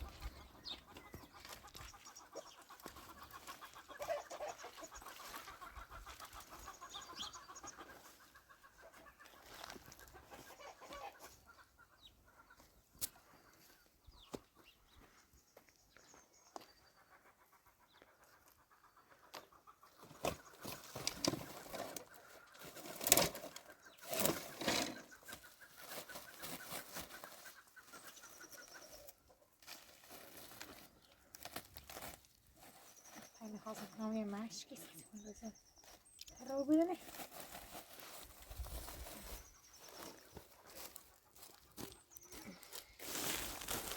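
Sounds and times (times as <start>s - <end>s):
chickens clucking: 0.0s - 15.0s, 16.5s - 32.0s, 37.5s - 43.9s
rustling: 20.2s - 28.0s, 37.0s - 41.9s.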